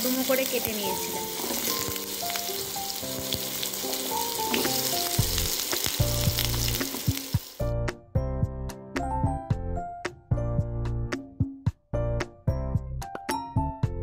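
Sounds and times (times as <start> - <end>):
potatoes sizzling in oil: 0.0 - 7.7
background music: 0.0 - 14.0.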